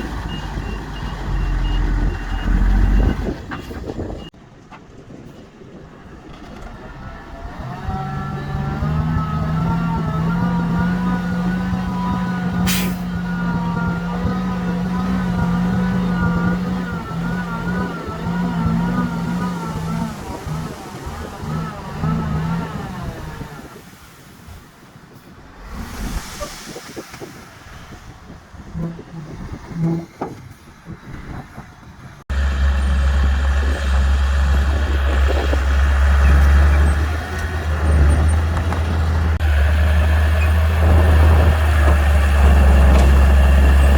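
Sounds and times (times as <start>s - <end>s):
heavy diesel engine running: 32.3s - 43.9s
machinery knocks and clanks: 40.2s - 43.9s.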